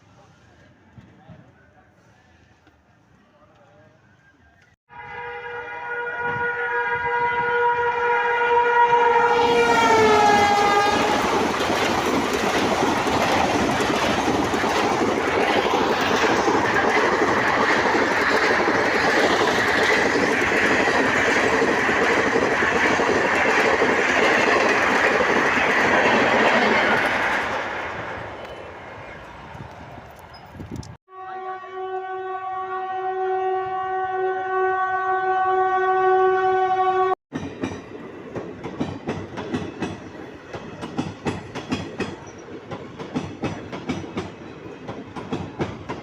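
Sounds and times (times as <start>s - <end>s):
train horn: 4.9s - 11.4s, 31.1s - 37.2s
train wheels on rails: 9.3s - 31.0s, 37.3s - 46.0s.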